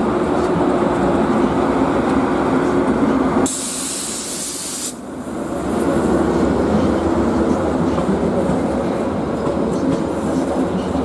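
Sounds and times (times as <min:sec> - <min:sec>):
train rumbling: 0:00.0 - 0:11.0
hissing air burst: 0:03.4 - 0:05.0.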